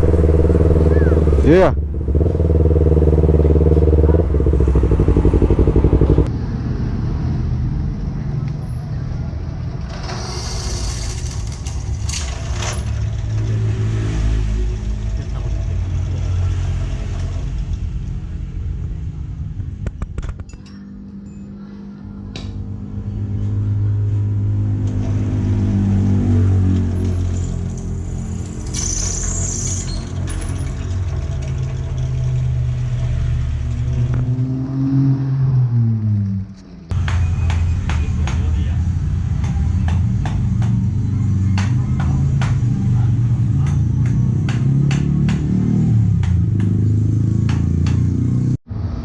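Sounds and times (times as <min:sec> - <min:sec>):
motorcycle engine running: 0:00.0 - 0:06.3
vehicle engine rumbling: 0:00.0 - 0:49.0.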